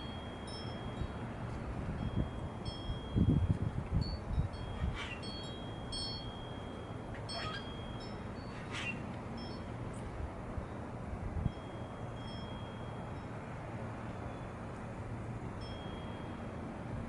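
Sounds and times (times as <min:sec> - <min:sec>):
wind rumbling on microphone: 0:00.0 - 0:06.4
wind chime ringing: 0:00.0 - 0:08.7, 0:09.3 - 0:10.0, 0:10.6 - 0:13.4, 0:15.6 - 0:16.6.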